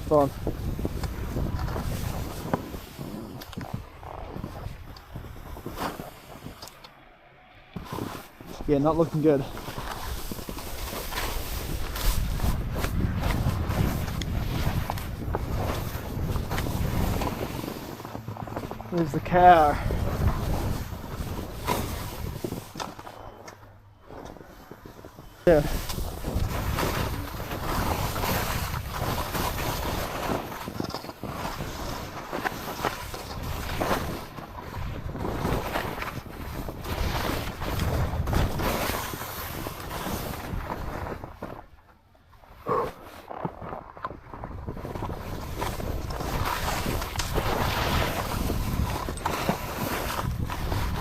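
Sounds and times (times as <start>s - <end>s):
skis scraping through snow: 0.0s - 6.8s, 7.7s - 23.4s, 24.0s - 41.8s, 42.4s - 51.0s
wind rushing over microphone: 0.0s - 6.8s, 7.6s - 23.4s, 24.3s - 41.6s, 44.2s - 51.0s
skis hissing through snow: 1.8s - 3.3s, 7.8s - 12.8s, 46.2s - 50.9s.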